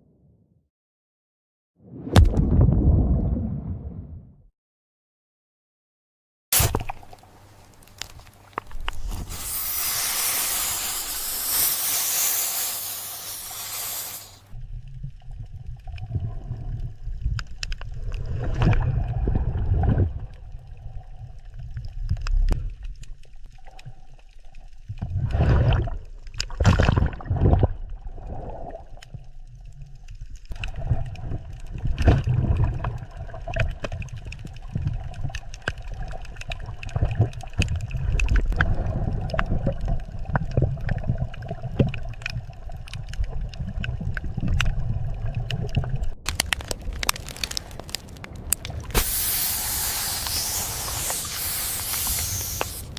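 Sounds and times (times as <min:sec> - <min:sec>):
water rumbling and gurgling: 0:01.8 - 0:04.5, 0:14.5 - 0:49.3
water rushing hiss: 0:09.0 - 0:14.6, 0:48.8 - 0:52.9.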